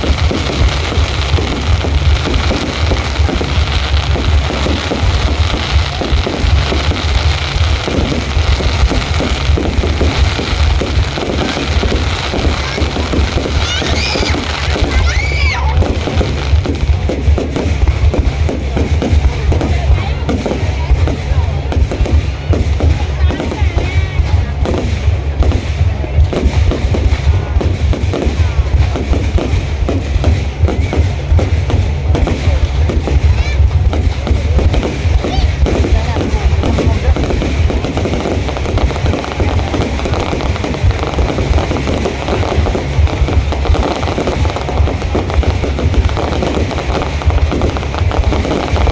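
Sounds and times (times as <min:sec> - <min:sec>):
fireworks barrage: 0:00.0 - 0:48.9
low rumble: 0:00.0 - 0:48.9.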